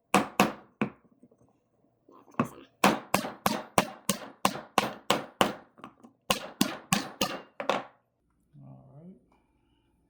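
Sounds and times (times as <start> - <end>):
hammer striking wood block: 0.1 - 1.0, 2.8 - 8.0.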